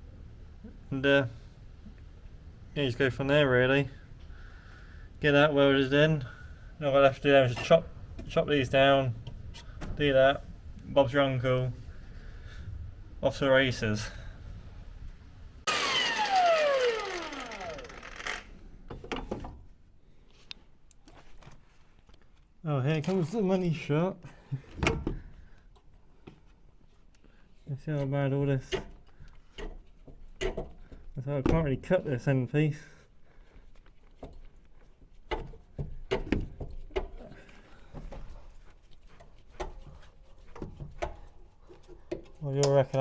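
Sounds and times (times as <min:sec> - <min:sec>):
angle grinder winding down: 0:15.7 - 0:18.5.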